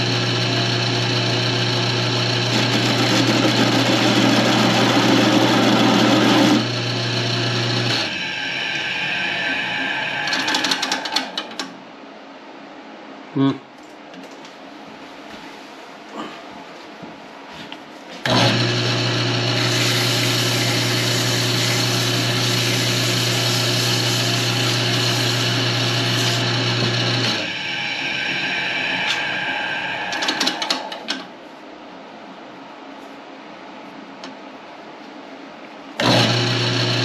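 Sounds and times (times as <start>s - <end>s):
wood lathe running: 0.0s - 11.7s, 18.2s - 31.2s, 36.0s - 37.0s
texturing tool buzzing on spinning wood: 18.3s - 30.6s.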